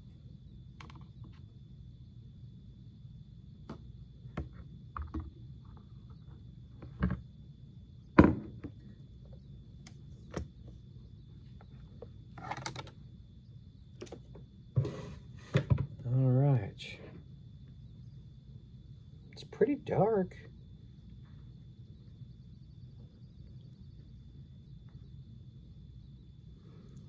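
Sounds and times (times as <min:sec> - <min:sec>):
low steady hum: 0:00.0 - 0:27.0
objects knocking on a table: 0:08.2 - 0:08.8, 0:15.5 - 0:15.9.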